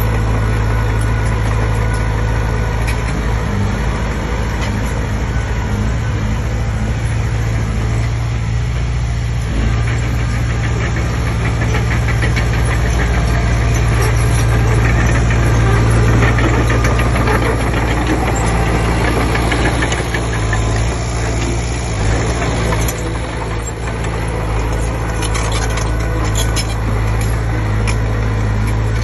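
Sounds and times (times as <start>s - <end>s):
bulldozer diesel engine running: 0.0s - 29.0s
fast rattle: 9.4s - 29.0s.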